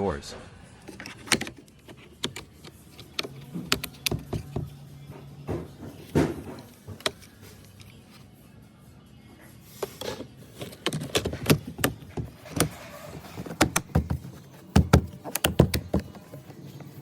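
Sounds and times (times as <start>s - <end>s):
clicks and knocks on car door: 13.4s - 16.3s.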